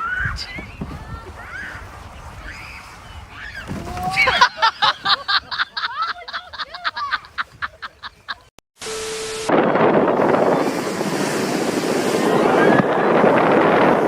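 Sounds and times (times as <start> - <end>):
person laughing hard: 4.1 - 8.5
low hum with rushing noise: 8.8 - 14.0.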